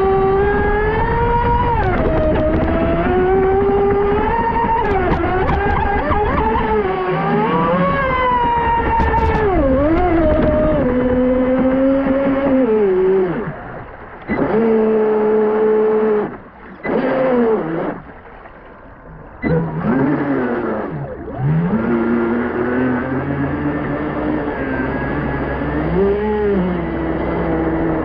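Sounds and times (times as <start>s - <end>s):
electric motor whining: 19.4s - 28.0s.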